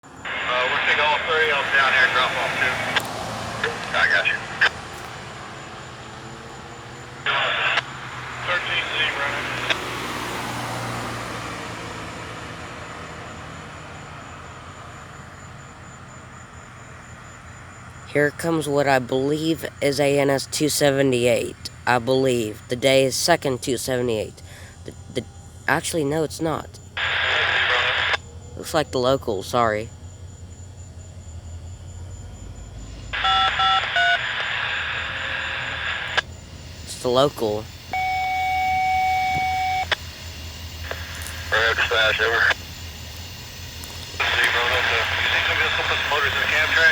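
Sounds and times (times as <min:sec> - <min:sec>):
radio static hiss: 0:00.0 - 0:05.1, 0:06.9 - 0:10.0, 0:25.7 - 0:28.8, 0:33.1 - 0:46.9
diesel locomotive engine humming: 0:00.0 - 0:46.9
touch-tone beeps: 0:33.2 - 0:34.2, 0:37.0 - 0:40.0.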